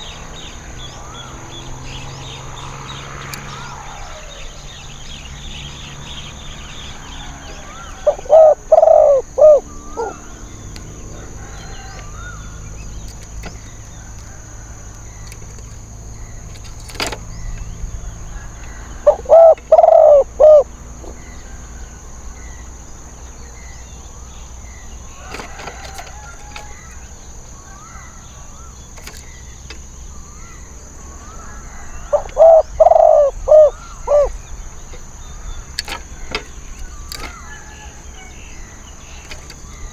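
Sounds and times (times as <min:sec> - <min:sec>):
dove cooing: 0:07.5 - 0:12.4, 0:18.4 - 0:21.3, 0:31.7 - 0:34.4.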